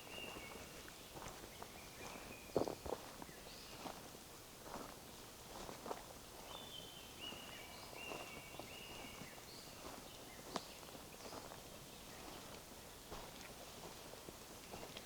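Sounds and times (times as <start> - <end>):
footsteps crunching on path: 0.0 - 15.0.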